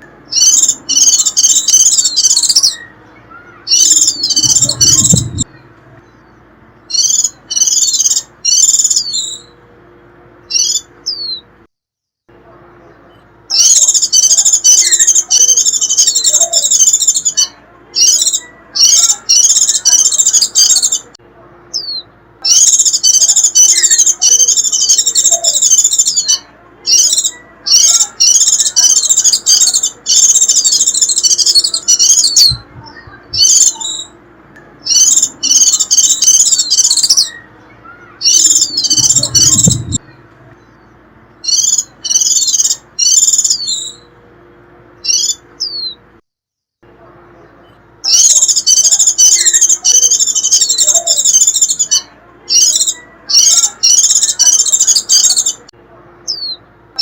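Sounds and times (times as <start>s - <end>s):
bird twittering call: 0.0s - 9.6s, 13.5s - 21.1s, 21.7s - 34.2s, 34.8s - 44.1s, 45.0s - 46.0s, 48.0s - 55.6s.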